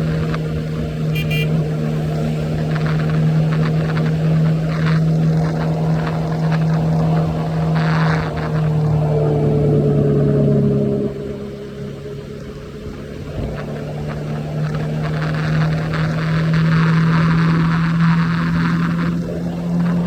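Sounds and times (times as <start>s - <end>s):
motorcycle engine cruising: 0.0s - 20.0s.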